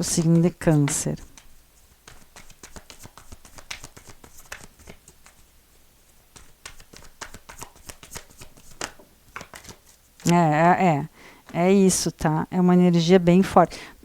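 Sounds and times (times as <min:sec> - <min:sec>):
cards being shuffled: 0:00.0 - 0:05.5, 0:06.3 - 0:10.5
soft card flicks and taps: 0:00.3 - 0:05.4, 0:06.4 - 0:10.4.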